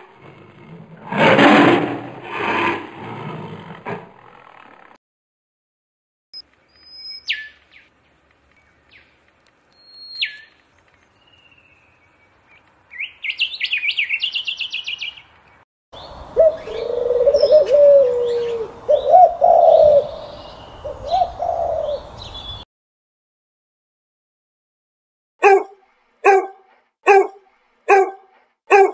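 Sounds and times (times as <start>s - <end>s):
robin singing: 6.6s - 7.9s, 8.6s - 22.6s
pigeons cooing: 16.4s - 22.1s.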